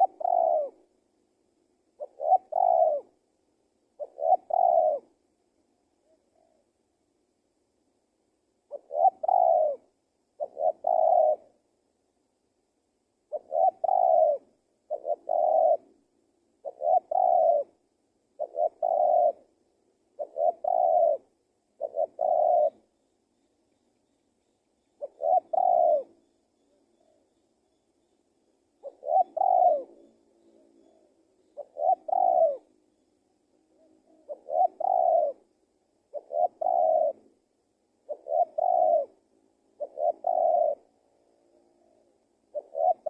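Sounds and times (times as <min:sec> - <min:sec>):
dove cooing: 0:00.0 - 0:01.0, 0:01.9 - 0:03.2, 0:04.0 - 0:05.2, 0:05.9 - 0:06.8, 0:08.6 - 0:11.7, 0:13.3 - 0:22.9, 0:24.8 - 0:27.4, 0:28.4 - 0:43.0.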